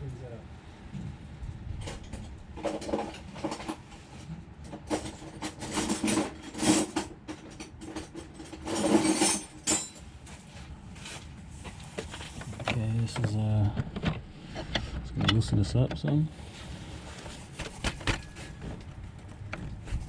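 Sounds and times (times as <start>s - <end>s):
metal hand tools clinking: 8.6s - 10.0s.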